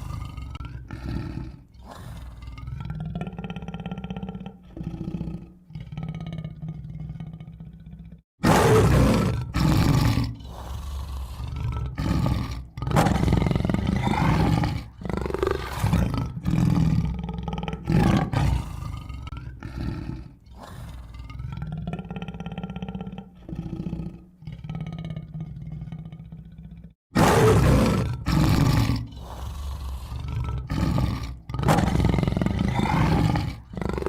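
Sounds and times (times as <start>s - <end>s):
tiger roaring and growling: 0.0s - 34.0s.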